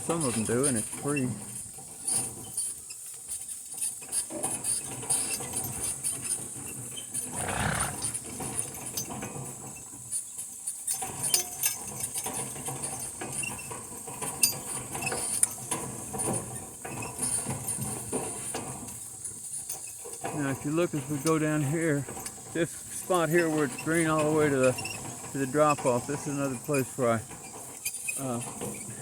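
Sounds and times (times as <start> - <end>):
rustle: 0.0 - 29.0.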